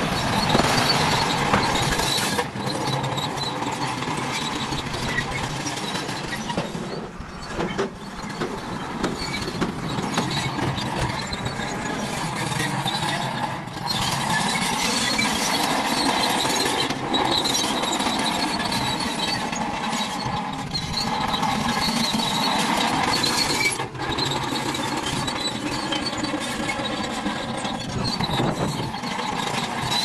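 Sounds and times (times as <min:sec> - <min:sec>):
toy motors whining: 0:07.5 - 0:30.0.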